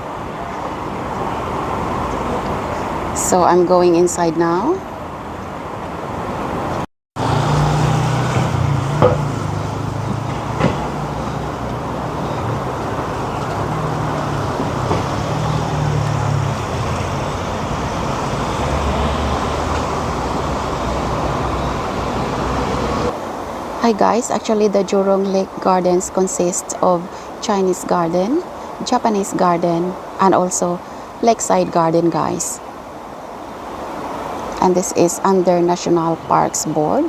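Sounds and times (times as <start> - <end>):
road traffic noise: 0.0 - 37.0
light knocks: 8.3 - 9.4, 10.0 - 11.0.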